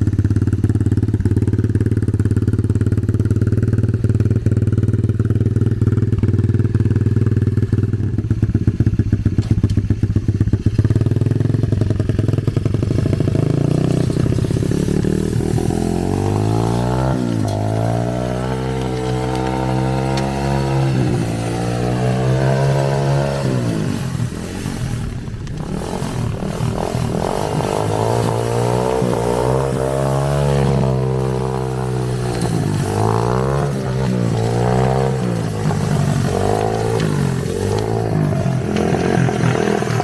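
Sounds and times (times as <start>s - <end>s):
dirt bike engine revving: 10.6s - 40.0s.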